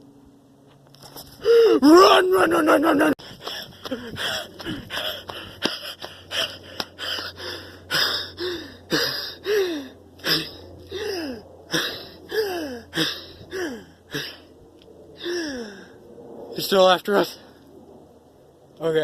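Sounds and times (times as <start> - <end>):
man panting hard: 3.2 - 14.5, 15.2 - 16.0.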